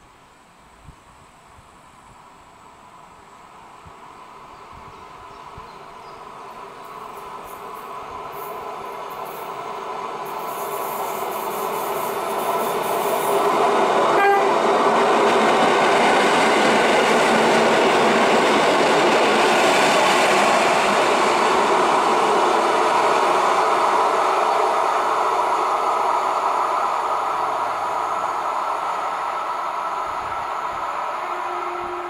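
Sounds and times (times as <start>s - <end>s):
train wheels running at speed: 3.8s - 32.0s
short train horn toot: 14.1s - 14.6s, 31.2s - 32.0s.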